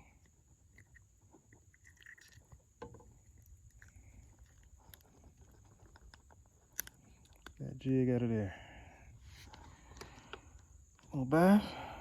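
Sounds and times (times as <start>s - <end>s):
faint handling clicks and rustles: 0.0s - 8.0s, 9.2s - 11.2s.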